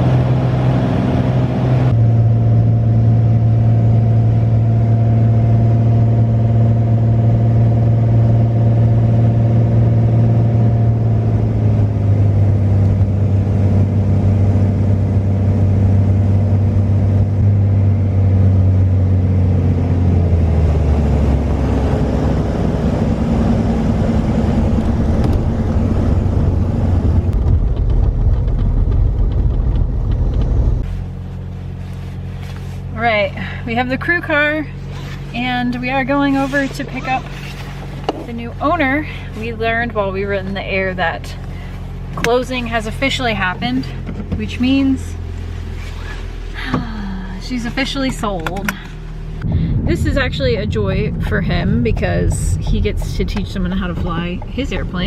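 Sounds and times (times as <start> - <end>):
piston aircraft engine from cabin: 0.0 - 32.6.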